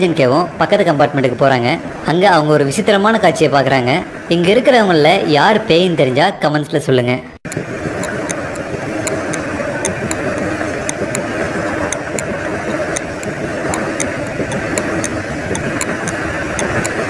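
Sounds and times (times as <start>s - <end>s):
train carriage rumbling: 0.0s - 17.0s
clock ticking quickly: 7.5s - 17.0s.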